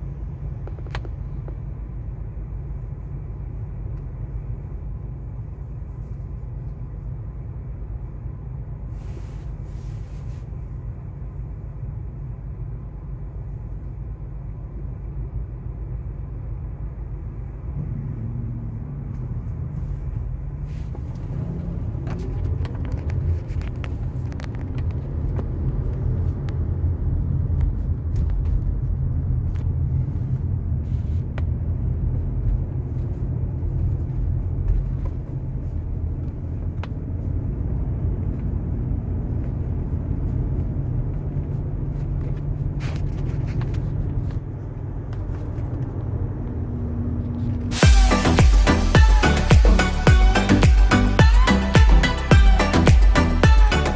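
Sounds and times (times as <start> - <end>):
car engine and road rumble: 0.0 - 53.9.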